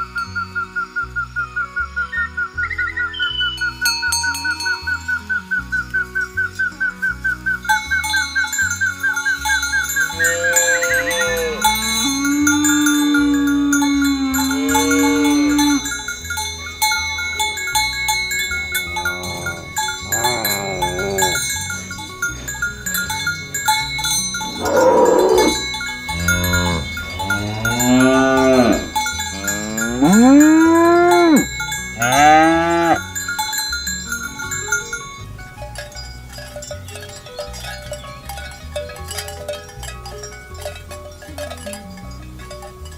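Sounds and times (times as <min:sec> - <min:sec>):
cattle mooing: 0:10.0 - 0:15.9, 0:18.6 - 0:21.5, 0:24.4 - 0:33.0.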